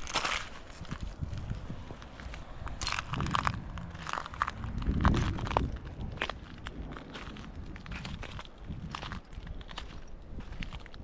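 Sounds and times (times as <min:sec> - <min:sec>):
footsteps crunching on sand and shells: 0:00.0 - 0:11.0
low rumble: 0:00.8 - 0:10.4.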